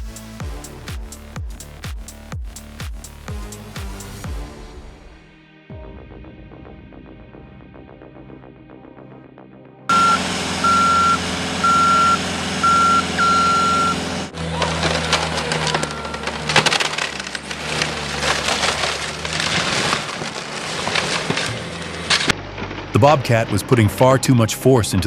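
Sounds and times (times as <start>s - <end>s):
reversing alarm beeping: 9.9s - 14.2s
loader engine running: 9.9s - 25.0s
wood cracking and splintering: 14.3s - 23.8s.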